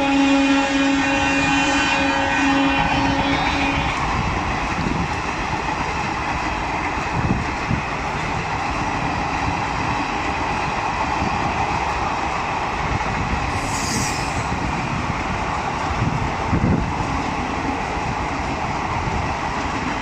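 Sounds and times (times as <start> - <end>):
train wheels rumbling on rail: 0.0 - 20.0
brief hiss: 13.5 - 14.6.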